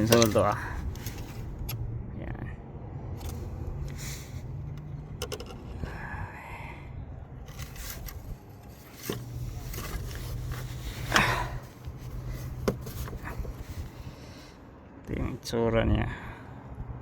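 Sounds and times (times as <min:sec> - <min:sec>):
metal tools scraping and clicking: 0:00.0 - 0:01.4.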